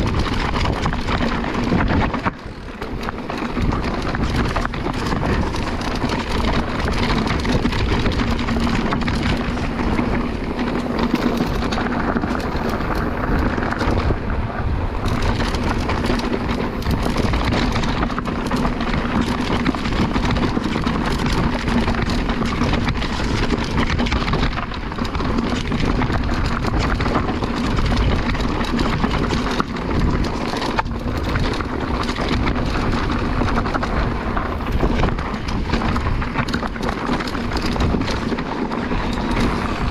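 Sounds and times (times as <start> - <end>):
bike frame clattering: 0.0 - 14.2, 24.4 - 39.9
tyres crunching over loose stones: 0.0 - 39.9.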